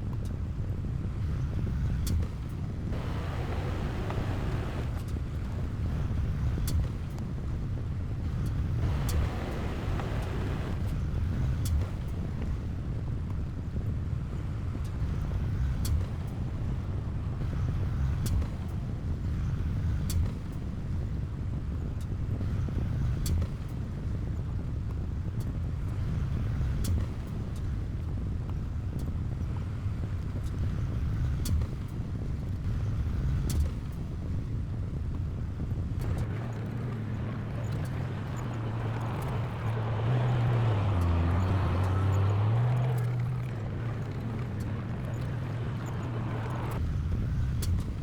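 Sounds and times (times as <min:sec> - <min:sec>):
diesel earthmoving machine rumbling: 0:00.1 - 0:13.1, 0:32.0 - 0:48.0.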